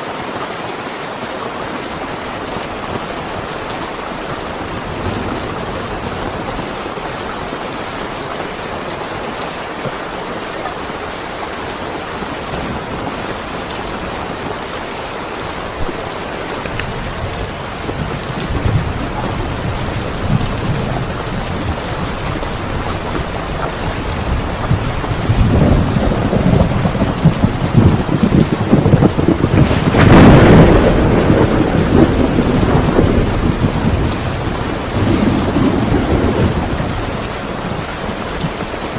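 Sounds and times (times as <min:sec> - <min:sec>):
heavy rain falling: 0:00.0 - 0:38.9
thunder rumbling: 0:01.8 - 0:38.9.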